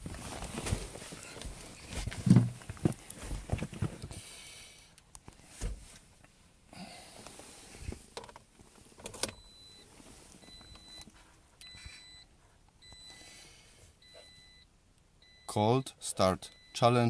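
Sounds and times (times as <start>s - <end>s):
dashboard warning chime beeping: 9.3s - 13.4s, 14.0s - 17.0s.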